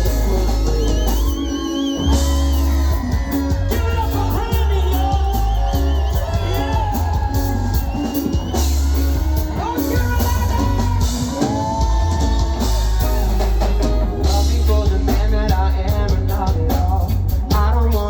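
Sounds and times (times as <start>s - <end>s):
crowd cheering: 0.0s - 15.0s
live rock band playing: 0.0s - 18.0s
person singing wordlessly: 14.2s - 18.0s.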